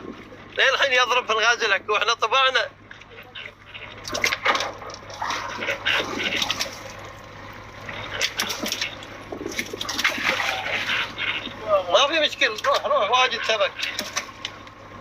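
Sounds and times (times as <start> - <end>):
low steady hum: 0.0 - 15.0
water splashing and sloshing: 0.0 - 15.0
fish thrashing in net: 4.0 - 7.1, 7.9 - 11.6, 13.8 - 14.4.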